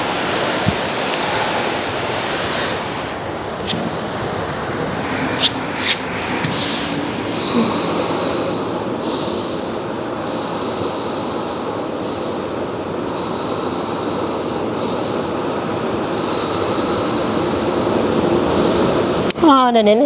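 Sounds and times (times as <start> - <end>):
ocean surf: 0.0 - 19.6
wind: 0.0 - 20.0
high-pitched hiss: 4.8 - 19.6.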